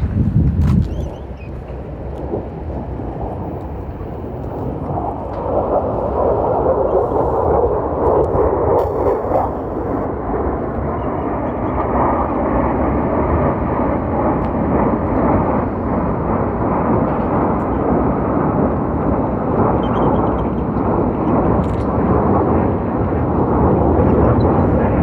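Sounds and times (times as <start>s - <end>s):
fighter jets flying over: 0.0s - 25.0s.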